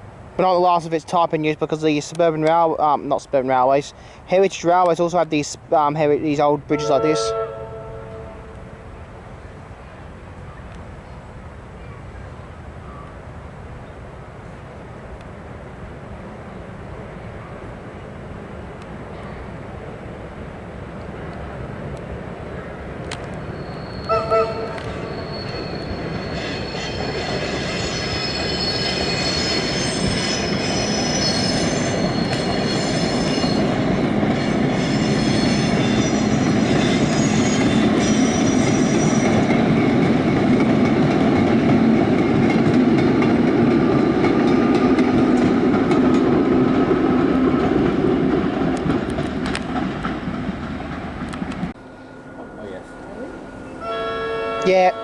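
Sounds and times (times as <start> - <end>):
rumble of train wheels: 0.0 - 55.0
train wheel squeal: 23.4 - 40.0.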